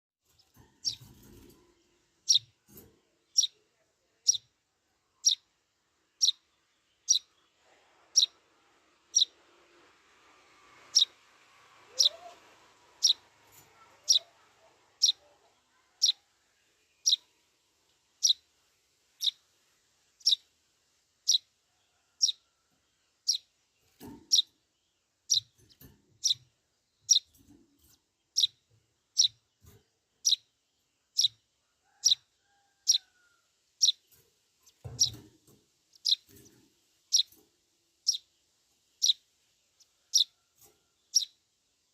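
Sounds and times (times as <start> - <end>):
sparrow chirping: 0.3 - 1.6, 2.2 - 3.6, 4.2 - 7.5, 8.1 - 8.4, 9.1 - 9.4, 10.8 - 11.2, 11.9 - 17.5, 18.1 - 18.5, 19.1 - 20.6, 21.2 - 21.6, 22.2 - 22.4, 23.1 - 33.1, 33.8 - 34.1, 34.7 - 37.4, 38.0 - 40.4, 41.0 - 41.5.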